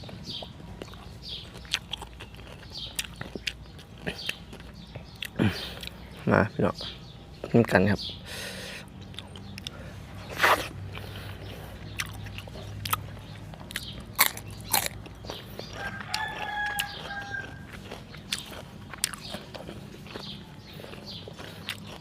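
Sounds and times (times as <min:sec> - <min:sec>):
person chewing and crunching: 0:00.0 - 0:06.3, 0:08.8 - 0:22.0
rooster crowing: 0:15.7 - 0:17.8.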